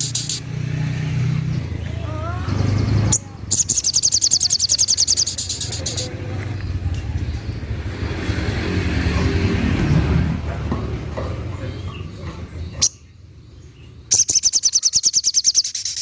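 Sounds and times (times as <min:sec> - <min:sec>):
bird trilling: 0:00.0 - 0:00.5, 0:01.9 - 0:06.2, 0:14.1 - 0:16.0.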